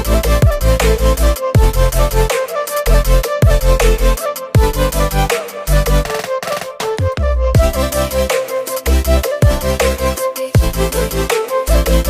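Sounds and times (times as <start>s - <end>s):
electronic music with deep bass: 0.0s - 12.0s.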